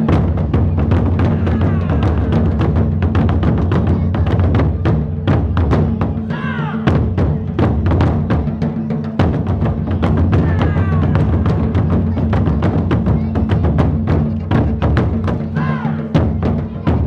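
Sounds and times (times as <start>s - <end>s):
taiko drums in fast rhythm: 0.0s - 17.0s
shouted calls: 1.2s - 2.4s, 10.3s - 12.2s, 15.4s - 16.2s.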